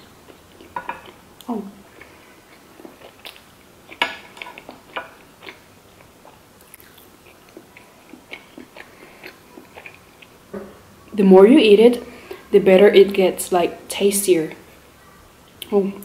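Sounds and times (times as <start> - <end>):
wet chewing: 0.2 - 10.4.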